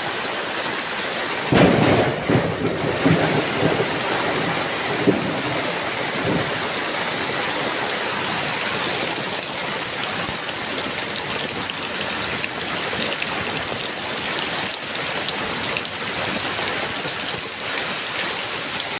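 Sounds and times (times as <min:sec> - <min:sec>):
heavy rain falling: 0:00.0 - 0:18.9
thunder rumble: 0:01.5 - 0:09.1.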